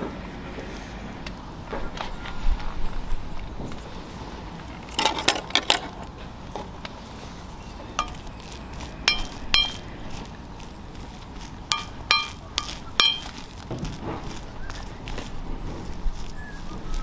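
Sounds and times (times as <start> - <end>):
utensils clinking on cookware: 8.0 - 8.3, 9.0 - 9.8, 11.7 - 13.4.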